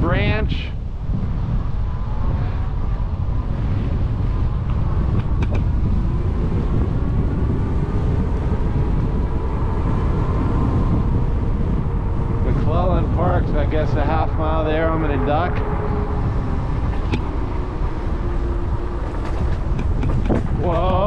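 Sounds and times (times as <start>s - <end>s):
faint steady whine: 0.0s - 21.0s
wind buffeting microphone: 0.0s - 21.0s
tyres rolling: 16.8s - 21.0s.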